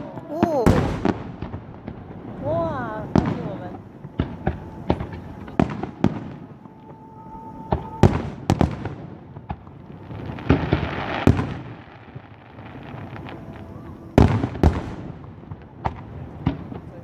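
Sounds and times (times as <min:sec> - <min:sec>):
fireworks bangs: 0:00.0 - 0:17.0
fireworks hiss: 0:07.2 - 0:15.3.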